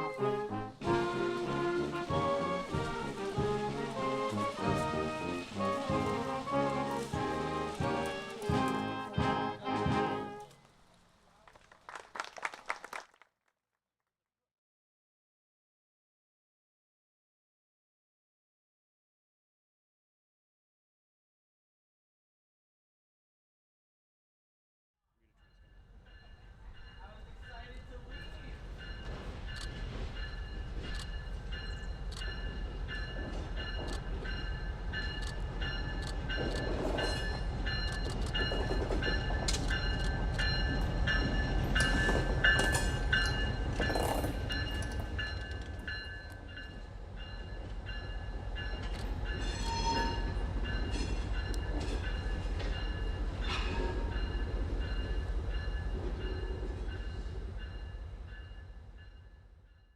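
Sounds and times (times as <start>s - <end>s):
train low rumble: 0.0s - 11.5s, 25.4s - 59.9s
wheels clicking over rail joints: 35.0s - 46.6s
wheel squeal: 49.4s - 50.4s.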